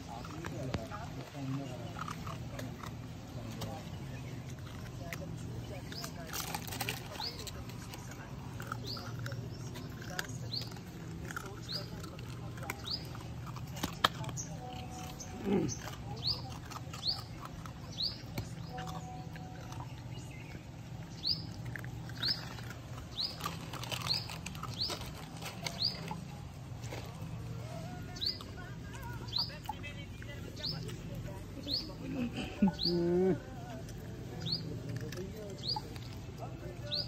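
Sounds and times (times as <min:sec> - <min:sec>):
small bird chirping: 0:14.3 - 0:26.1.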